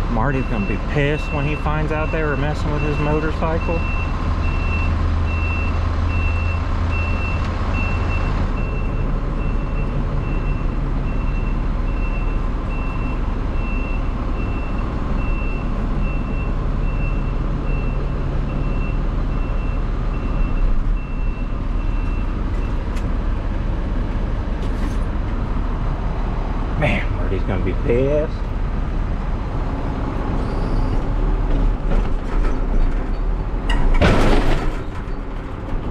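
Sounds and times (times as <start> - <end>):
truck backup alarm beeping: 0.0 - 23.0
truck engine running: 0.0 - 35.9.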